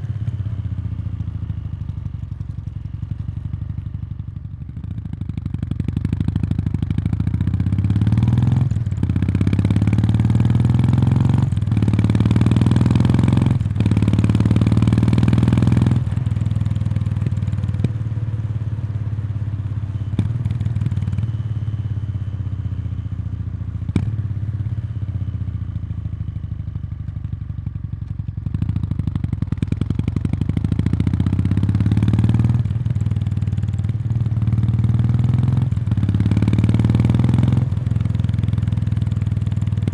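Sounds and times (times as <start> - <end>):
motorcycle engine accelerating: 5.1 - 25.6, 28.5 - 39.9.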